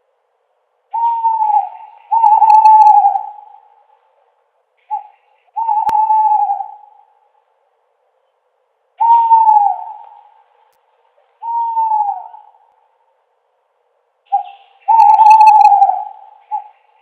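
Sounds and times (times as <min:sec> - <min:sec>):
owl hooting: 0:00.9 - 0:04.0, 0:04.8 - 0:07.4, 0:09.0 - 0:10.6, 0:11.2 - 0:12.8, 0:14.3 - 0:17.0.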